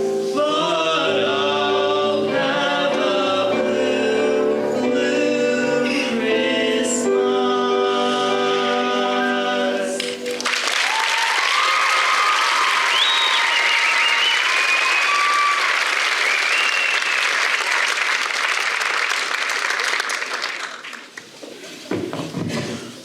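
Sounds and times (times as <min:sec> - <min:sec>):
choir singing held chord: 0:00.0 - 0:10.3
audience applause: 0:10.0 - 0:21.2
whoops and cheers: 0:10.7 - 0:17.4.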